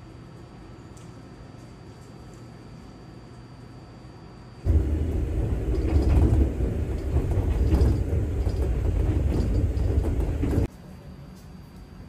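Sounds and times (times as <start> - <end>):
train wheels rumbling on rails: 4.6 - 10.7
faint track clacks: 4.7 - 10.7.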